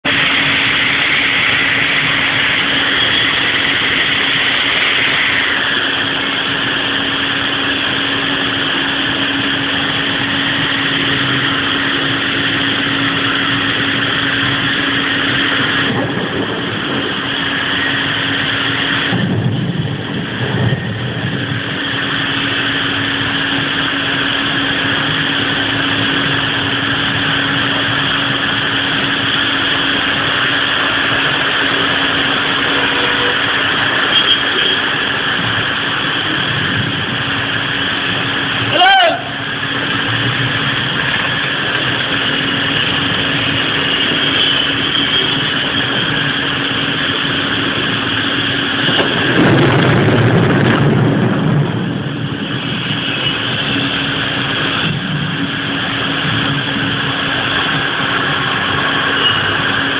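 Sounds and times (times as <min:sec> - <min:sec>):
heavy rain pouring: 0:00.0 - 0:59.9
steady low hum: 0:00.0 - 0:59.9
short low rumble: 0:48.9 - 0:52.8.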